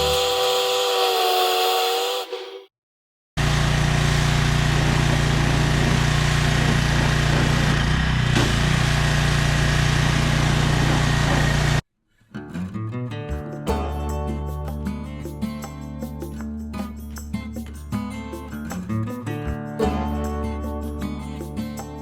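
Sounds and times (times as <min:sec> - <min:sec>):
pressure washer engine hum: 0:03.4 - 0:11.8.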